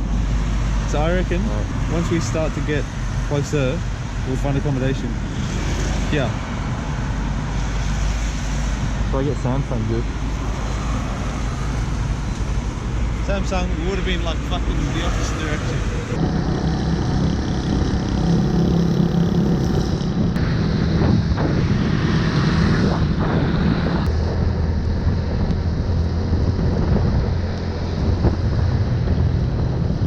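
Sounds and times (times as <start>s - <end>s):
wind buffeting microphone: 5.0s - 30.0s
motorbike running: 8.8s - 30.0s.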